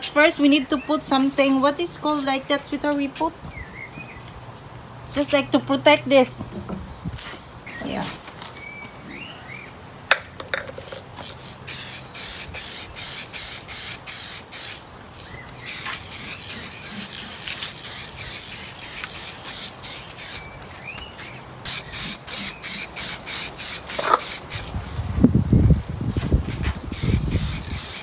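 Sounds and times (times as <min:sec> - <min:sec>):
spray hissing squirts: 0:11.6 - 0:20.4, 0:21.6 - 0:24.8, 0:26.7 - 0:28.0.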